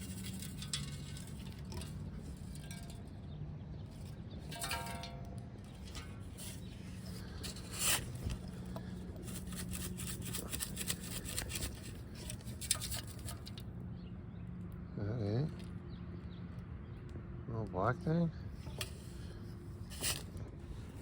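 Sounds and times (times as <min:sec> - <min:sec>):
hand scraping in ground: 0:00.0 - 0:03.2, 0:04.1 - 0:13.6, 0:18.6 - 0:21.0
steady low hum: 0:00.0 - 0:14.9.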